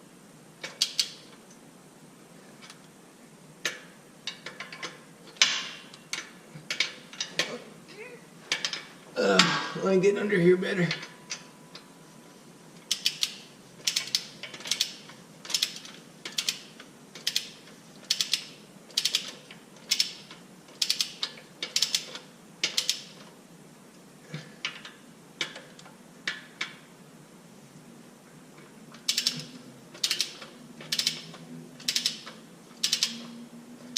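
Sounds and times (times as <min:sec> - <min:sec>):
socket ratchet clicking: 0:00.6 - 0:01.2, 0:12.9 - 0:23.2, 0:29.1 - 0:33.2.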